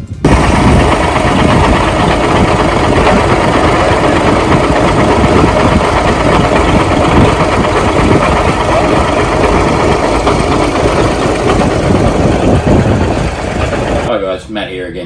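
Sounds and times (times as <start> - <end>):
truck diesel engine idling: 0.3 - 14.1.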